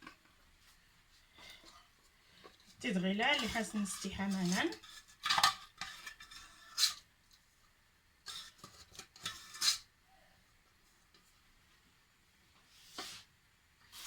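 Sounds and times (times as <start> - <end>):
kitchen scrapes and rustles: 0.0 - 7.6, 8.2 - 9.9, 12.6 - 14.0.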